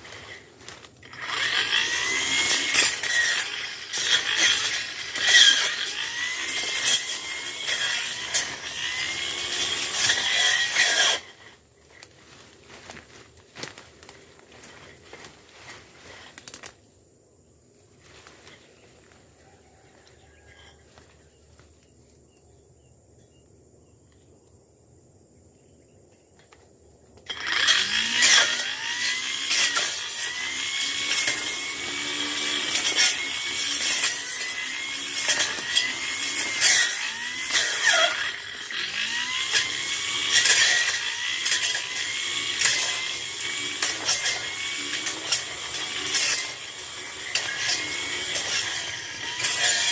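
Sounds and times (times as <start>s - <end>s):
brush cutter engine revving: 0.0s - 16.7s, 27.3s - 49.9s.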